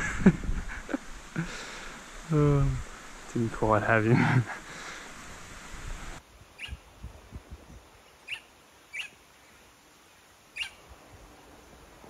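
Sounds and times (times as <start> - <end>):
steady hiss: 0.0 - 12.0
bird chirping: 6.5 - 6.9, 7.7 - 9.6, 10.5 - 11.0.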